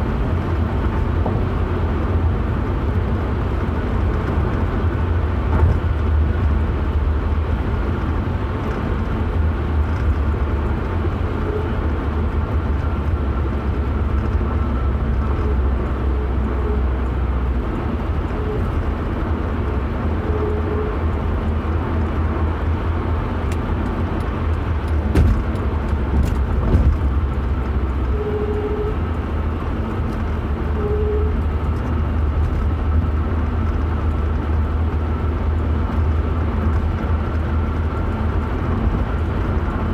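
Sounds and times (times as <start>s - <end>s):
vehicle rumble: 0.0s - 39.9s.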